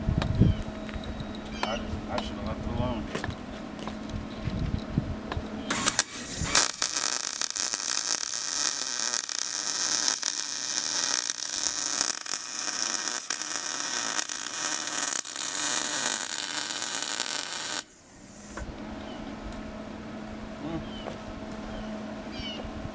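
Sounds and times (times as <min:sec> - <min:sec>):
electric arc welding crackling hiss: 0:05.7 - 0:18.5.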